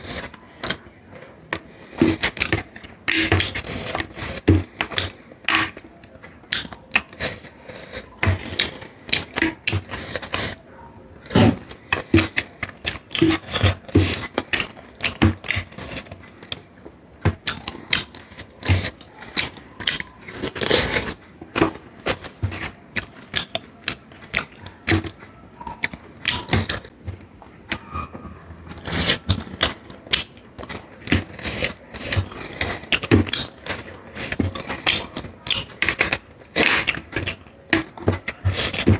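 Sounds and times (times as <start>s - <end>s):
chewing and lip smacking: 0.0s - 38.9s.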